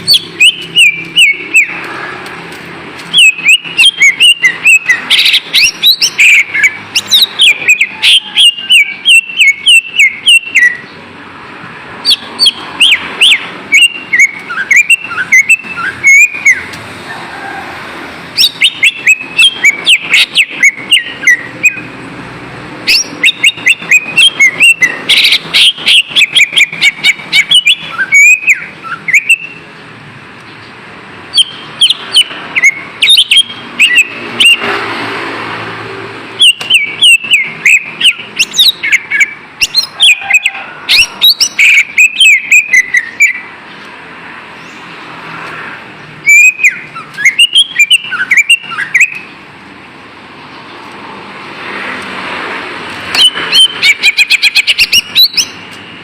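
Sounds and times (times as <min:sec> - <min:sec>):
bird singing sharp chirps: 0:00.0 - 0:02.0, 0:03.1 - 0:11.0, 0:12.0 - 0:16.7, 0:18.4 - 0:22.0, 0:22.9 - 0:29.7, 0:31.3 - 0:34.8, 0:36.4 - 0:43.5, 0:46.2 - 0:49.4, 0:53.1 - 0:55.7
steady background noise: 0:00.0 - 0:56.0.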